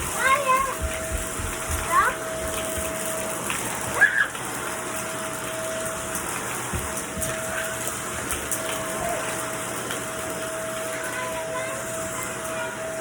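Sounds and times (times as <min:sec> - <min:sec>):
vacuum cleaner running: 0:00.0 - 0:13.0
high-pitched cry: 0:04.0 - 0:04.4.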